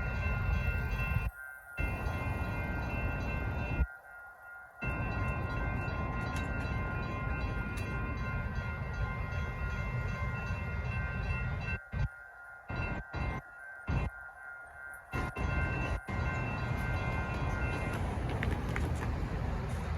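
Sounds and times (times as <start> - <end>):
freight train rumbling: 0.0 - 3.9, 4.8 - 11.8, 15.1 - 19.9
crossing signal bells ringing: 0.0 - 19.9.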